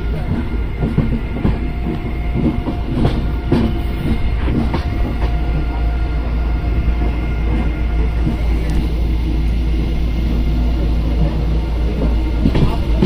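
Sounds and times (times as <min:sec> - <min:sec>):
train rumbling on track: 0:00.0 - 0:13.0
wheels clacking over rails: 0:11.1 - 0:13.0.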